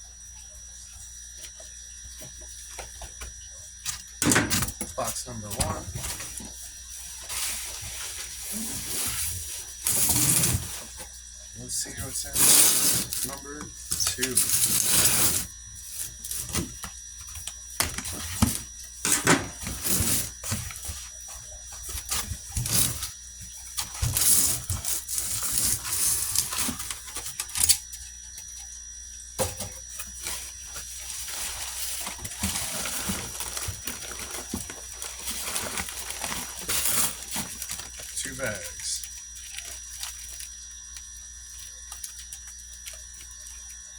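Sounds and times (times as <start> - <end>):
packing rustling: 30.0 - 40.6
cardboard box being opened: 31.2 - 38.0.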